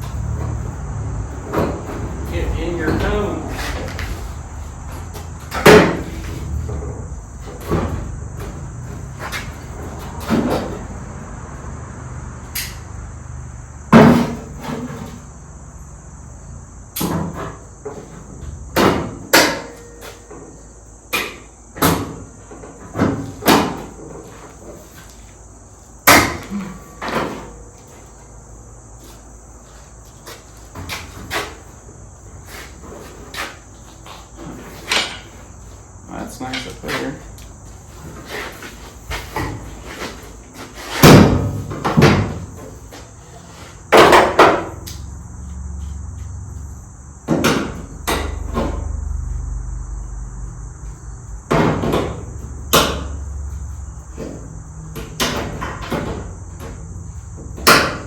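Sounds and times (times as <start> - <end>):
metal panels knocking and clanking: 0.0 - 11.1, 17.0 - 24.8, 34.4 - 35.6, 36.3 - 43.2, 43.8 - 44.9, 47.2 - 49.0, 51.5 - 53.3, 54.1 - 58.0.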